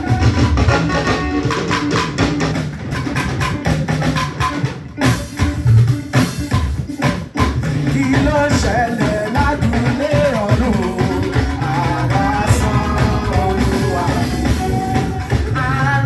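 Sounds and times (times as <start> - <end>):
worship music with drums and guitar: 0.0 - 16.0
person singing: 7.8 - 16.0.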